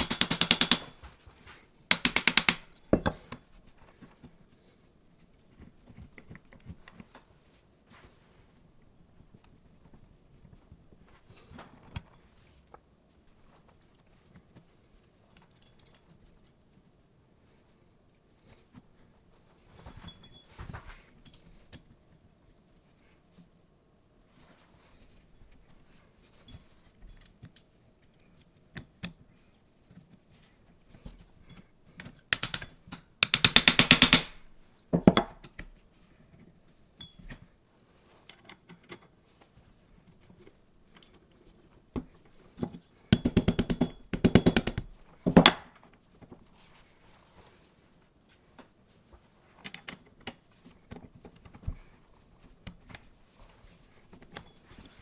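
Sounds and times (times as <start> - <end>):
rapid ratcheting clicks: 0.0 - 1.0, 1.9 - 2.7, 32.4 - 32.6, 33.2 - 34.4
metal parts clinking: 1.9 - 2.7, 32.4 - 34.4.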